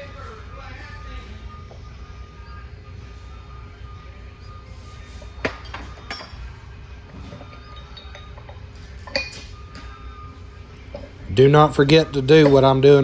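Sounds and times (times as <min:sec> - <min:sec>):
low steady shop hum: 0:00.0 - 0:13.0
metal parts clinking together: 0:07.2 - 0:09.5.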